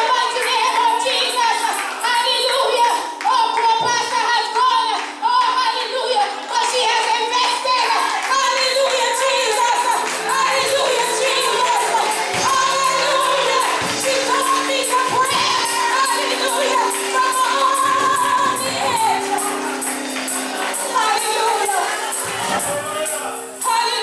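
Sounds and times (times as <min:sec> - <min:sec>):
tambourine beat: 0:00.0 - 0:03.4, 0:07.7 - 0:24.0
gospel singing: 0:00.0 - 0:24.0
held chords: 0:08.6 - 0:24.0.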